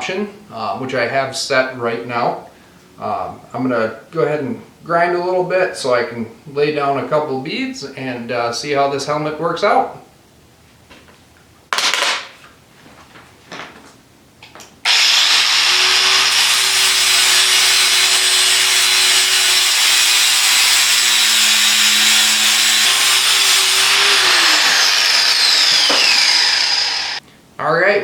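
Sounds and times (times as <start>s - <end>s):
angle grinder grinding: 14.9s - 27.2s.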